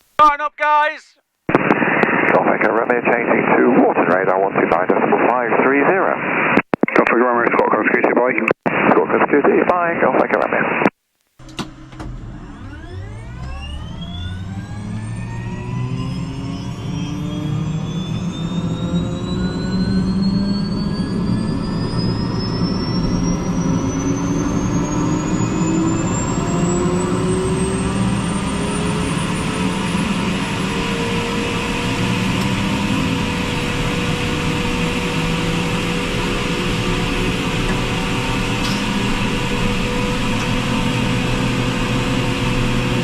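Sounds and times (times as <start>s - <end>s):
helicopter turbine whine: 12.2s - 43.0s.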